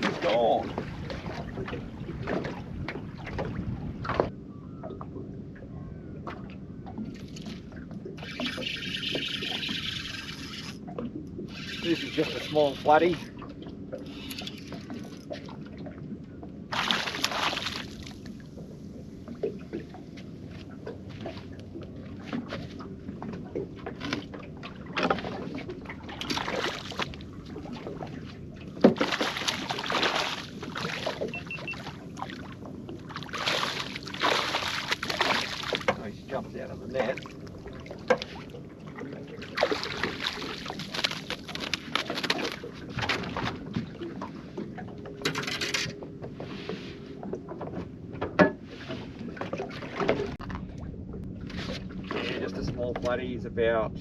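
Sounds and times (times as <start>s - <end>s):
water splashing: 16.7s - 20.1s, 20.8s - 45.8s.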